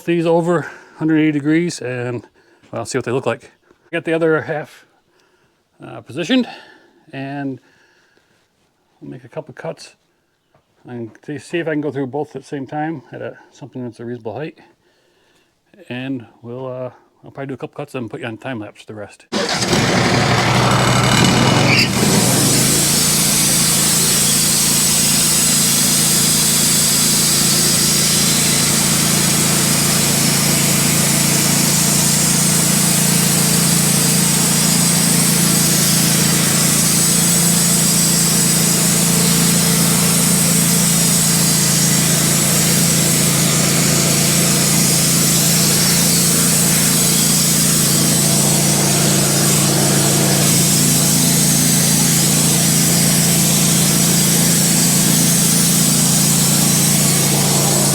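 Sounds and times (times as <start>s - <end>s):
band sawmill sawing log: 19.3s - 57.9s.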